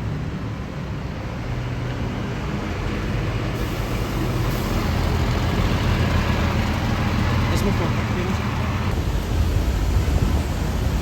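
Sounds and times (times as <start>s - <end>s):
tyre and road noise: 0.0s - 11.0s.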